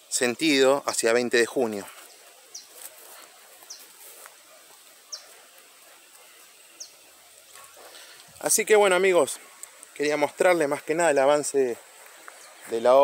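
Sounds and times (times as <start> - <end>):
faint outdoor hiss: 0.0 - 13.0
bird calling: 2.0 - 8.3.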